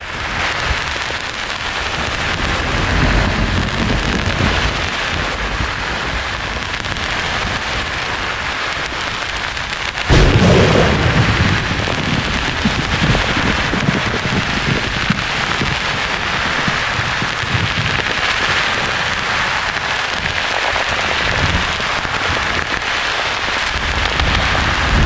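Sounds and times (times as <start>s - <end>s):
loud thunderclap: 1.8s - 6.5s, 10.0s - 20.5s
low thunder rumbling: 1.8s - 7.7s, 10.0s - 20.4s.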